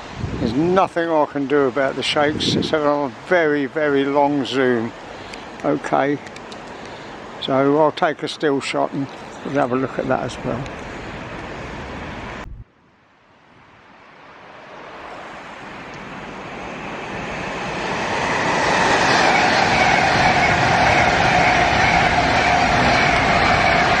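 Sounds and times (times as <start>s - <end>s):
train running on rails: 0.0s - 12.5s, 14.0s - 24.0s
steady whine: 15.2s - 24.0s.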